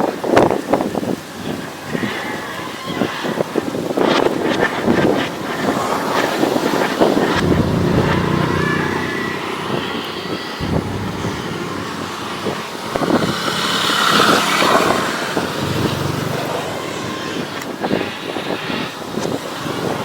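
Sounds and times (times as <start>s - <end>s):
excavator motor humming: 7.3s - 9.7s, 10.6s - 12.8s.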